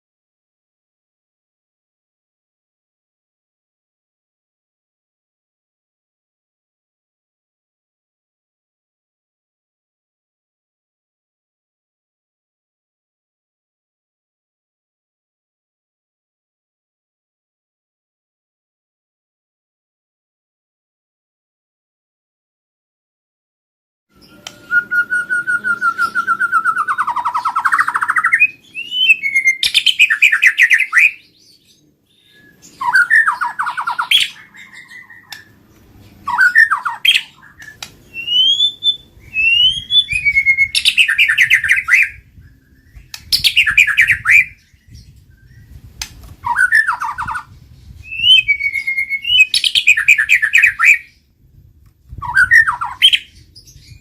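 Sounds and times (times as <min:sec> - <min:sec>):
songbird singing loudly: 0:24.2 - 0:51.3, 0:52.1 - 0:54.0.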